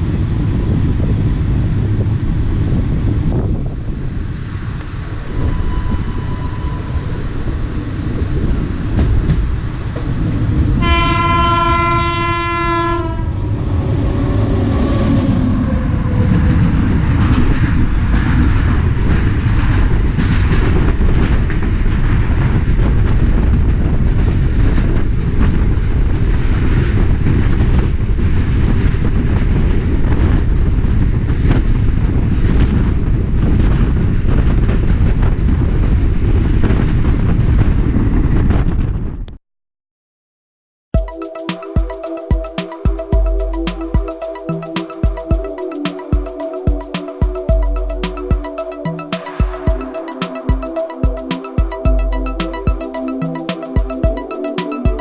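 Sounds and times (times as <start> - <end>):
train rumbling on rails: 0.0 - 36.9
locomotive horn blast: 10.8 - 15.9.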